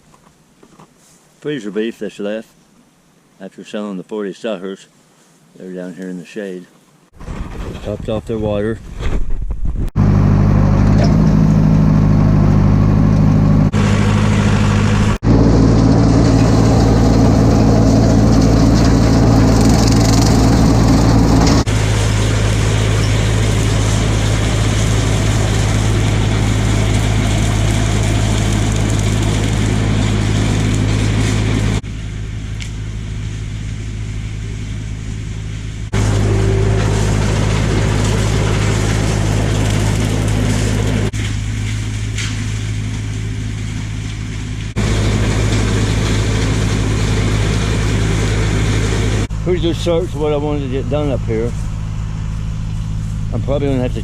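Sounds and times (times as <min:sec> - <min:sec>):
tractor engine running: 0:09.3 - 0:54.0.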